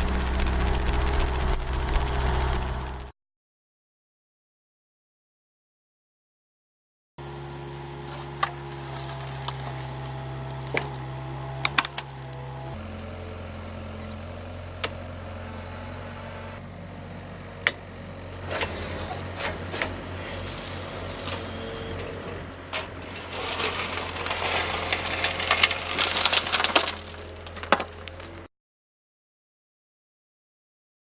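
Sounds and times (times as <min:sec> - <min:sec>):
heavy machine engine running: 0:00.0 - 0:03.1, 0:07.2 - 0:28.5
rattling and scraping: 0:08.0 - 0:12.8, 0:18.4 - 0:28.5.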